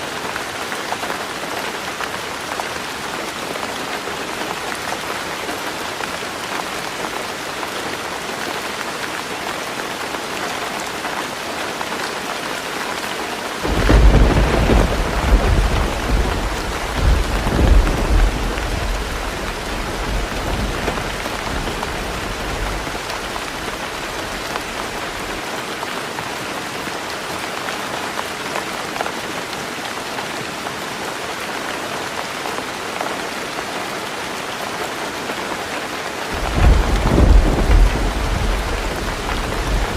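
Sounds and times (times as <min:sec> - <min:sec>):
heavy rain on a tin roof: 0:00.0 - 0:39.9
thunder rumbling: 0:13.6 - 0:25.4, 0:36.4 - 0:39.9.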